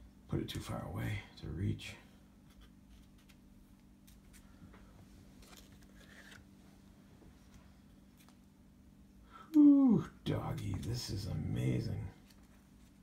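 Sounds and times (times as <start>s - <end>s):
steady low hum: 0.0s - 13.0s
trading cards rustling and clicking: 5.4s - 6.5s.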